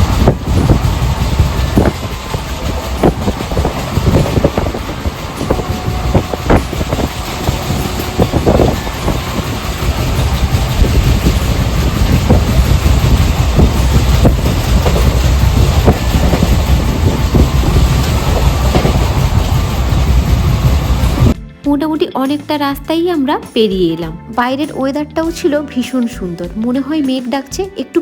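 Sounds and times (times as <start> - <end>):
clattering knocks: 0.0 - 21.4
train wheels rumbling on track: 0.0 - 21.4.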